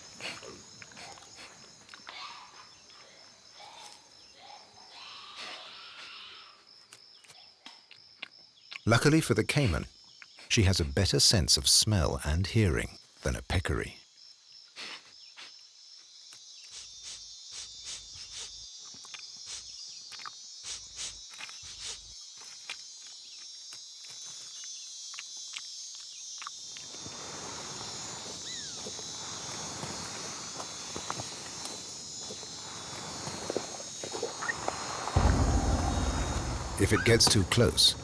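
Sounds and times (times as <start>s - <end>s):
high-pitched insect chorus: 8.9s - 38.0s.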